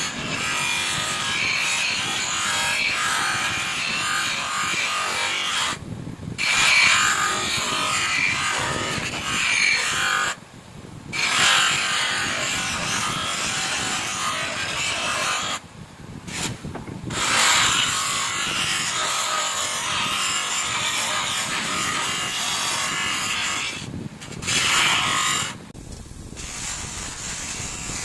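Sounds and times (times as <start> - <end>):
abrasive sanding of metal: 0.0 - 5.8, 6.4 - 10.4, 11.1 - 15.6, 16.3 - 25.7, 26.3 - 28.0.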